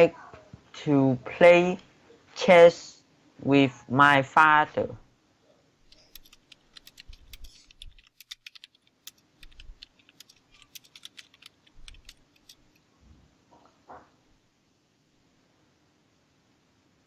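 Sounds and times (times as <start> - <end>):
typing on computer keyboard: 5.9 - 12.8.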